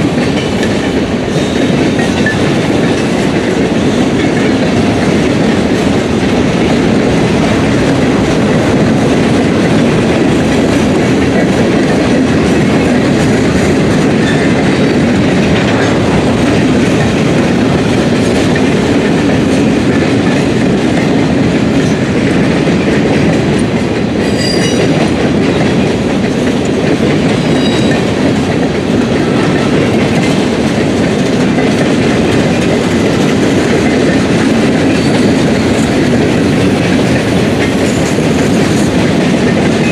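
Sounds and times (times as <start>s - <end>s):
freight train cars rolling: 0.0s - 39.9s
high-pitched train squeal: 14.1s - 16.0s, 24.2s - 25.7s, 27.2s - 28.3s, 34.8s - 36.0s.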